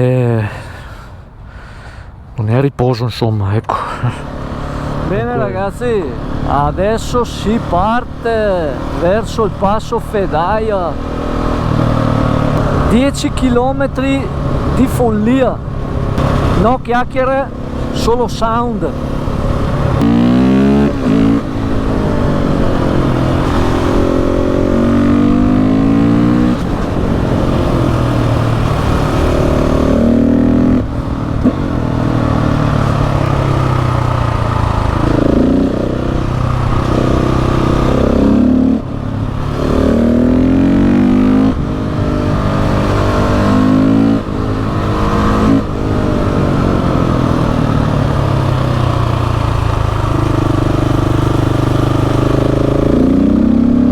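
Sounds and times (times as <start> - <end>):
motorcycle engine accelerating: 4.0 - 53.9.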